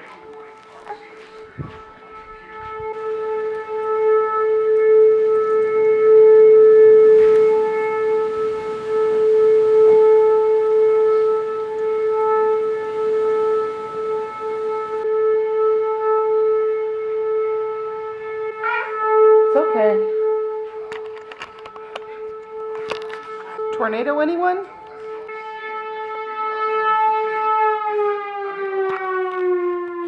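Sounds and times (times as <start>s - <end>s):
warning siren wailing: 0.0s - 30.0s.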